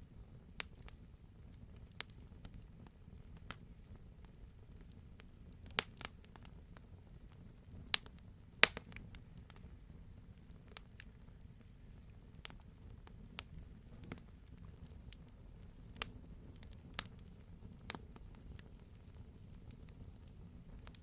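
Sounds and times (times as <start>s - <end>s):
campfire crackling: 0.1s - 21.0s.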